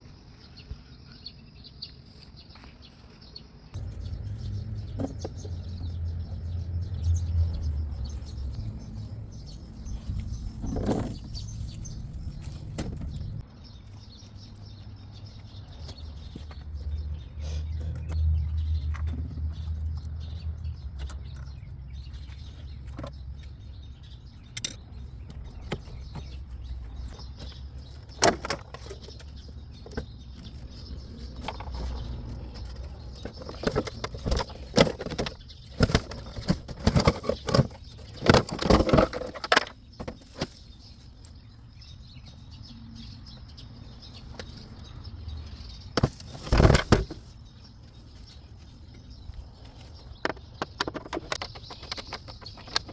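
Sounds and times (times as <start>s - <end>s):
hands clicking and rattling plastic: 50.1s - 52.9s.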